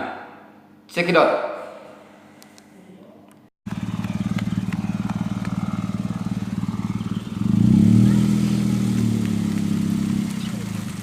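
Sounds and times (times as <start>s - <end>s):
car engine running: 3.7s - 11.0s.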